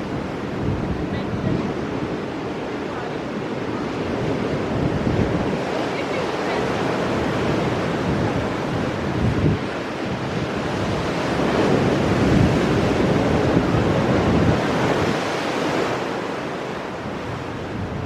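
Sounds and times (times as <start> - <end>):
ocean waves breaking over rocks: 0.0 - 18.0
wind on microphone: 0.0 - 18.0.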